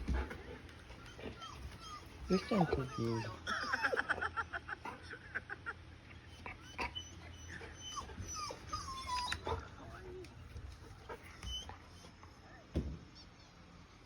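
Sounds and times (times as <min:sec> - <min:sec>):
dog whimpering: 0:00.8 - 0:03.8, 0:06.3 - 0:10.3, 0:11.0 - 0:12.6.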